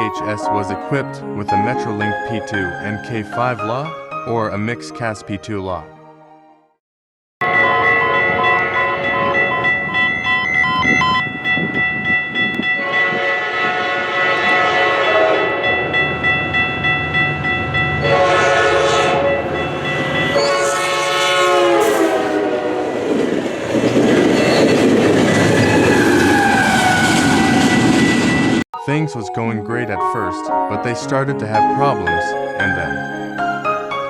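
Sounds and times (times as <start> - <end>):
train air horn blasts: 12.8 - 15.8, 18.0 - 23.2.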